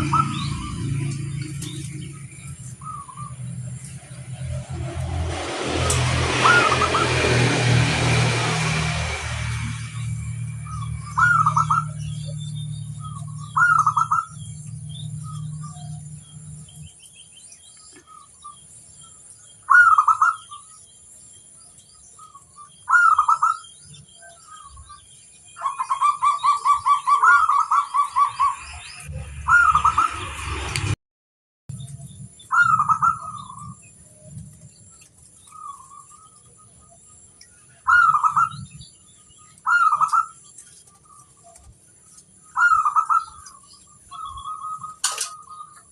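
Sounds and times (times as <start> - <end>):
small birds chirping: 0.0 - 5.0, 9.6 - 30.7, 31.7 - 45.9
low hum: 0.0 - 17.2, 27.6 - 31.0
dove cooing: 13.0 - 16.5.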